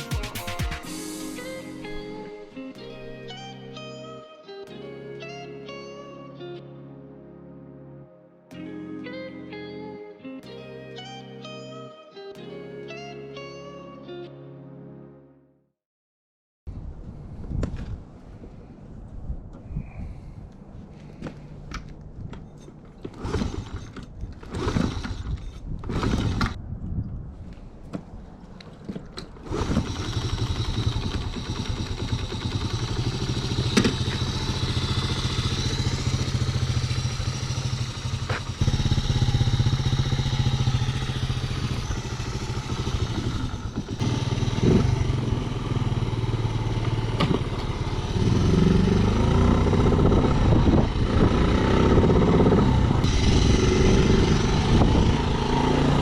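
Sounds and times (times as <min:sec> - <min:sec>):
small motorcycle engine starting: 0:23.1 - 0:26.6, 0:29.3 - 0:56.0.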